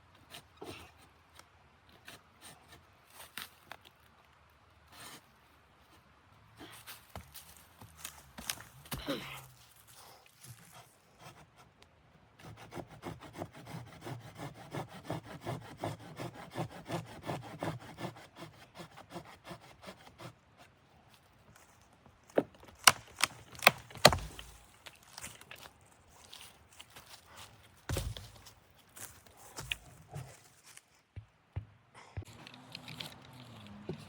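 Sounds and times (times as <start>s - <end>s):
rasping strokes on wood: 12.4s - 20.4s.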